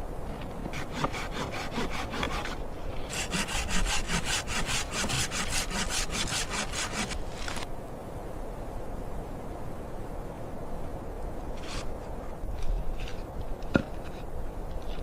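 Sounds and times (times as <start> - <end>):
hand saw cutting wood: 0.7 - 7.6.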